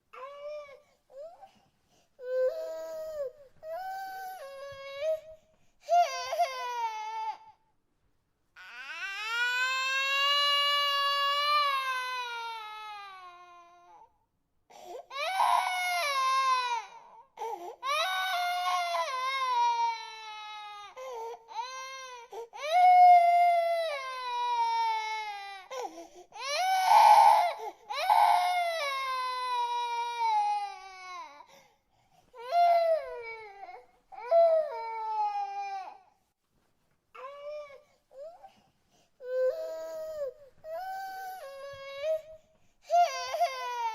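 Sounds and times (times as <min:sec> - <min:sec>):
baby crying: 0:02.2 - 0:07.6, 0:15.1 - 0:31.5, 0:39.2 - 0:43.9.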